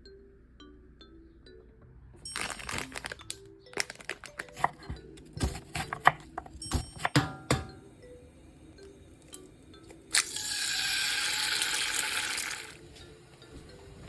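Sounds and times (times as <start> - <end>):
soft background music: 0.0 - 14.0
plastic packaging crinkling: 2.3 - 6.2.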